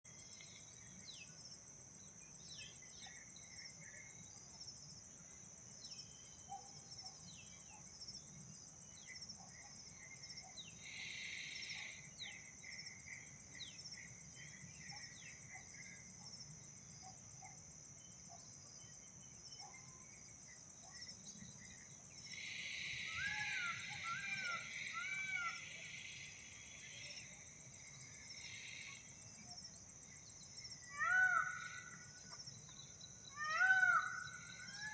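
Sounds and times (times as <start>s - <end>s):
pulsing insect chorus: 0.1s - 34.9s.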